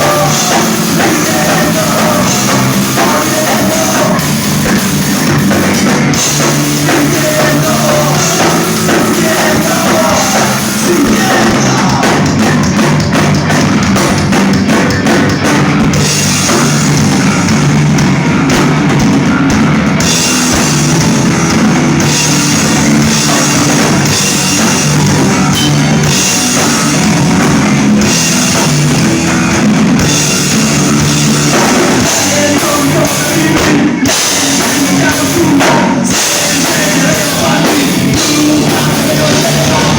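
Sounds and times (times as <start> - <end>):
distorted electric guitars: 0.0 - 39.9
pounding drum kit: 0.0 - 39.9.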